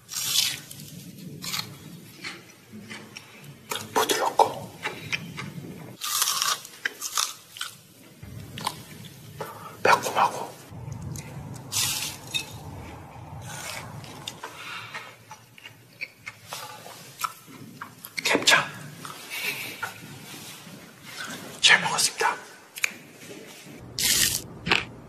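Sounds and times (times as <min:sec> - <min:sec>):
crunchy fried chicken chewing: 0:04.8 - 0:09.0, 0:24.0 - 0:24.9.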